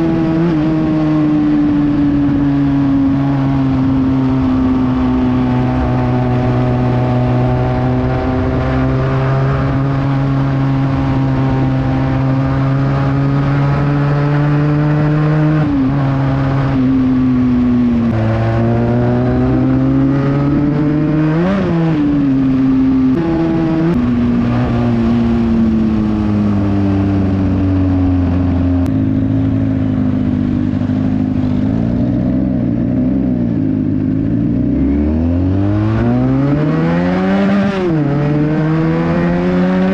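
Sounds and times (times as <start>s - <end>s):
motorcycle engine with loud exhaust: 0.0s - 39.9s.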